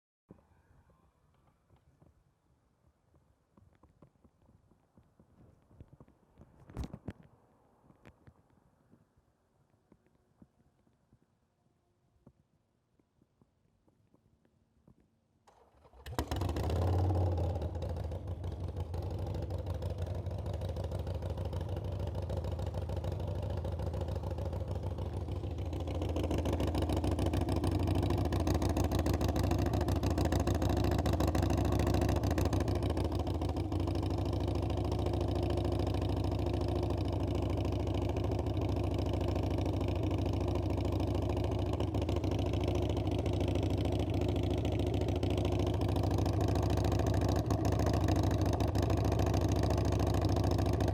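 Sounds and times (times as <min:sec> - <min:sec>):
motorcycle engine starting and running: 0:15.5 - 0:50.9.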